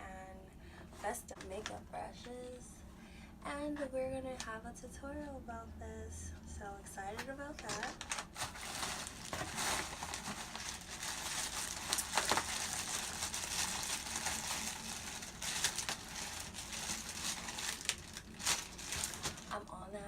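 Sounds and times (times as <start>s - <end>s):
packaging rustling and crinkling: 7.6s - 19.7s.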